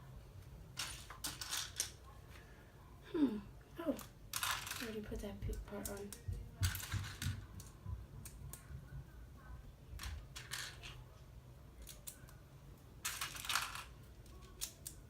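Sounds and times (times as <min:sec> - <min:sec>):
plastic pieces clicking and rattling: 0:00.8 - 0:02.0, 0:03.9 - 0:08.6, 0:10.0 - 0:11.0, 0:11.8 - 0:12.4, 0:13.0 - 0:15.0.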